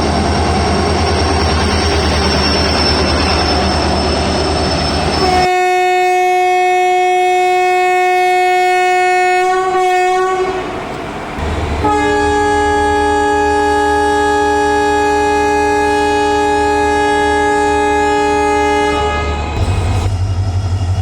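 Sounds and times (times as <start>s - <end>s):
train wheels rumbling: 0.0s - 21.0s
locomotive horn blast: 5.1s - 20.1s.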